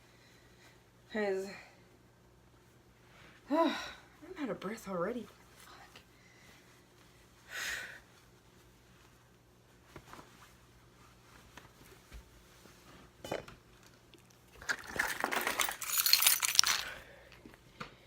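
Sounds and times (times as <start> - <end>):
rustling and clinking: 14.6 - 17.0.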